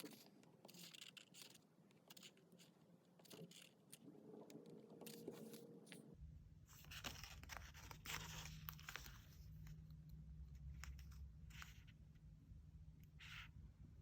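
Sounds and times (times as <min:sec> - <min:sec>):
faint low hum: 0:00.0 - 0:14.0
light paper rustling: 0:05.0 - 0:09.9.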